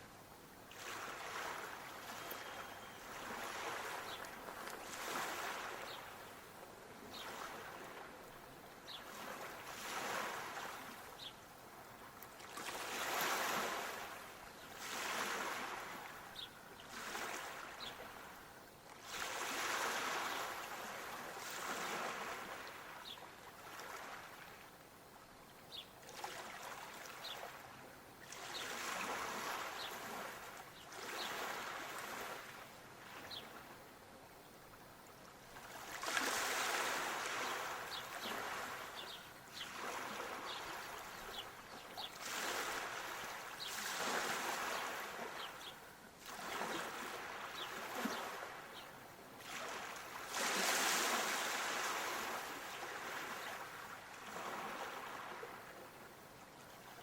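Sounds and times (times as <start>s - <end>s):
small waves washing in: 0.6s - 24.8s, 26.0s - 33.8s, 35.2s - 57.0s
faint high chirps: 2.1s - 3.1s.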